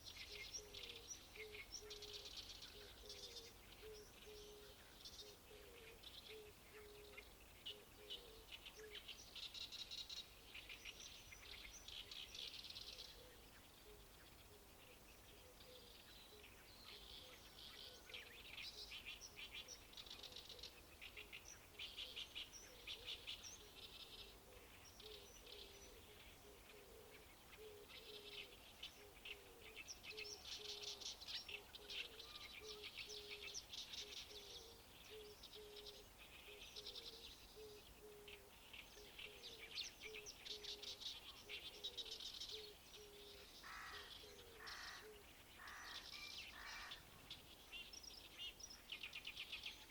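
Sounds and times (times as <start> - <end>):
faint songbirds singing: 0.0 - 49.9
harsh low bird calls: 32.0 - 47.5.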